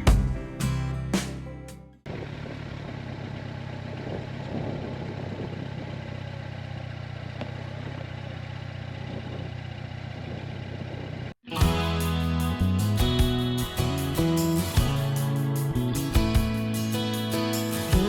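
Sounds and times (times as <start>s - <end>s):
strummed guitar music: 0.0s - 2.0s, 11.5s - 18.0s
motorcycle engine idling: 2.1s - 16.9s.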